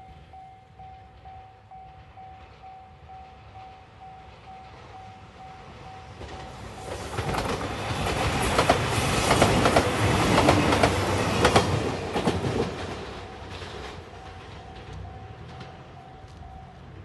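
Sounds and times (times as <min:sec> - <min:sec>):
express train passing: 0:00.0 - 0:17.0
wheels clicking over rail joints: 0:06.1 - 0:17.0.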